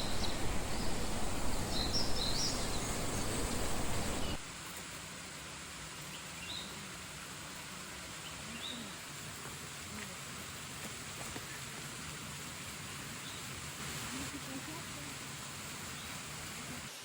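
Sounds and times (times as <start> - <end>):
faint bird chirps: 0.0 - 4.4
steady forest hiss: 0.0 - 17.0.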